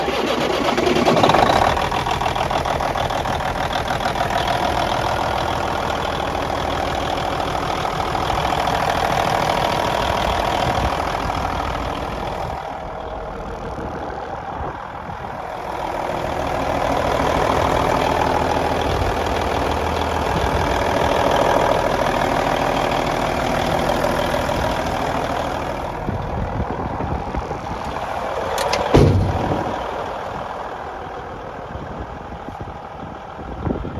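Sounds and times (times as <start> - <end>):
truck diesel engine running: 0.0 - 33.9
sharp loud knock: 28.7 - 29.8.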